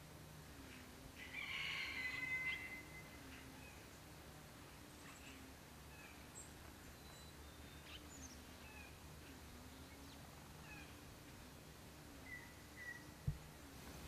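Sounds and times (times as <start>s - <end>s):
low steady hum: 0.0s - 14.0s
small birds chirping and whistling: 4.9s - 11.0s, 12.2s - 13.3s.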